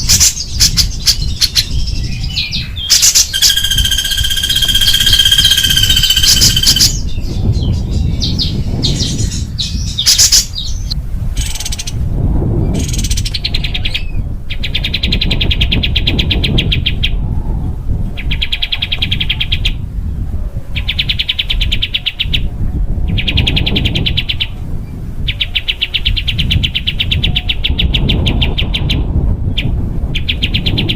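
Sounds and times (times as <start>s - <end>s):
songbird chirps and buzzy trills: 0.0s - 12.0s.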